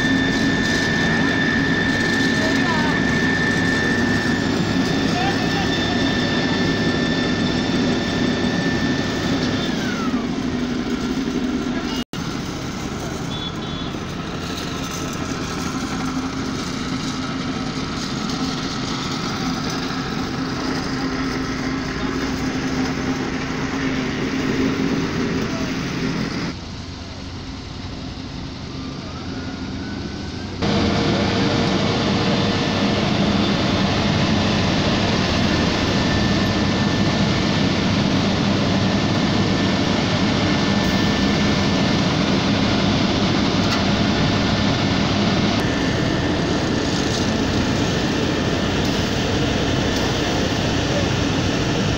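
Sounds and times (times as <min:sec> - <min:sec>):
heavy diesel engines running: 0:00.0 - 0:51.9.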